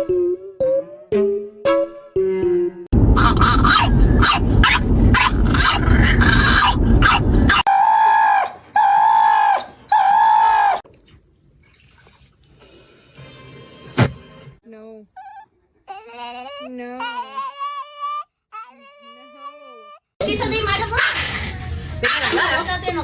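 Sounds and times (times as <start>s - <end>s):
dog vocalising loudly: 3.2s - 10.8s, 15.2s - 20.1s.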